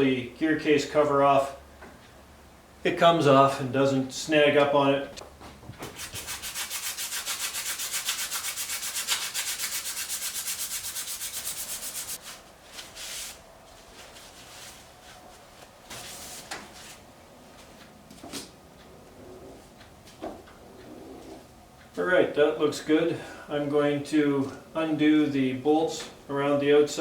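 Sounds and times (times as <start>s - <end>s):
rapid rubbing on metal shaft: 6.0s - 12.2s.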